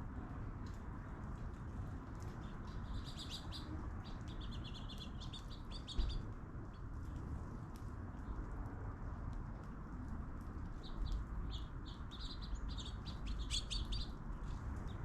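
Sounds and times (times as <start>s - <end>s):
birds chirping: 2.4s - 6.8s, 10.7s - 15.0s.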